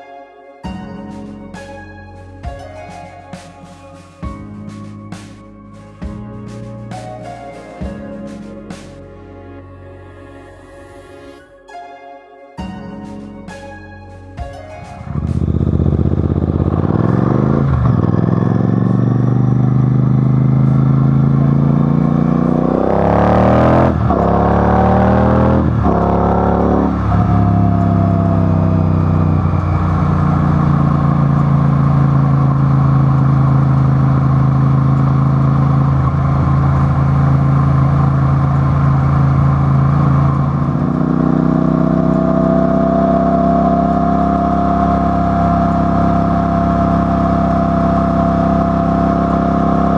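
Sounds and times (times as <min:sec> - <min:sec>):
thin whine: 0:00.0 - 0:49.9
vehicle engine accelerating: 0:15.0 - 0:49.9.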